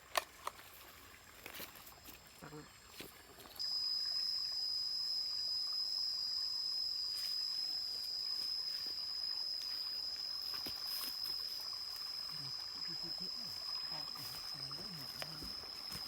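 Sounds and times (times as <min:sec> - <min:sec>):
high-pitched insect drone: 0:03.5 - 0:16.0
stream rushing: 0:07.1 - 0:16.0.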